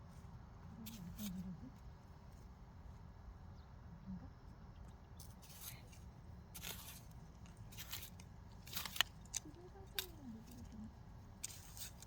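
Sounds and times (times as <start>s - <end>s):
hand hoe scraping in dirt: 5.2s - 10.8s, 11.4s - 12.0s.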